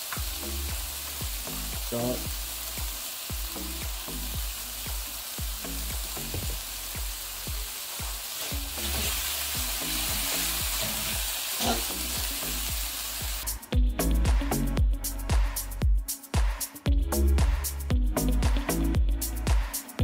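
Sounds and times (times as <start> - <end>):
vegetables sizzling in oil: 0.0 - 13.6.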